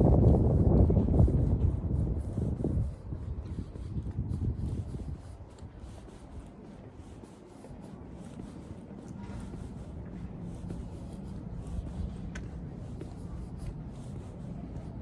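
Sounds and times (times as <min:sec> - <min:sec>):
faint rubbing and rustling: 0:00.0 - 0:15.0
low outdoor rumble: 0:00.0 - 0:15.0.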